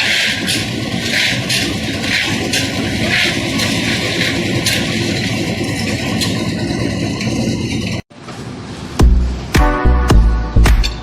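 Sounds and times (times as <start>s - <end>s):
concrete mixer drum turning: 0.0s - 8.0s.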